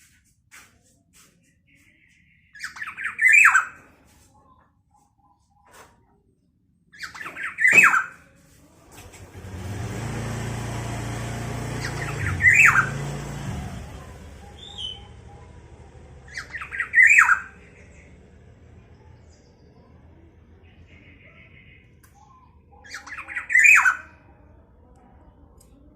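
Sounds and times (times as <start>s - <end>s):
low engine hum: 8.6s - 22.8s.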